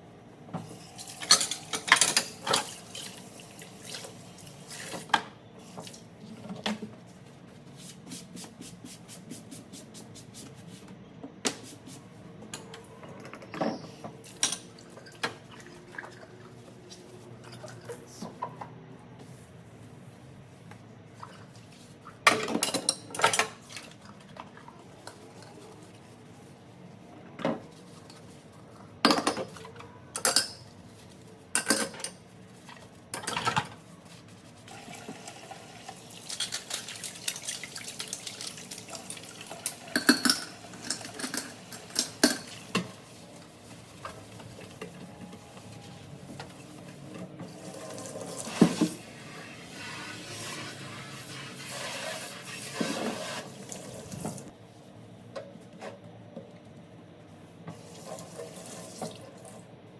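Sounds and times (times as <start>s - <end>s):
dishes and cutlery clattering: 1.1s - 2.8s, 22.3s - 23.6s, 29.1s - 30.7s, 31.6s - 32.2s, 39.6s - 42.9s
water running from tap: 34.7s - 41.4s.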